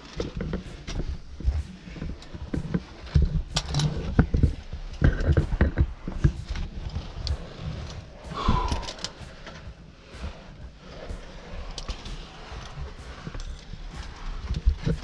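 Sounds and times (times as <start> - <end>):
low thumps and scrapes: 0.0 - 15.0
short vocal sound: 8.3 - 10.4.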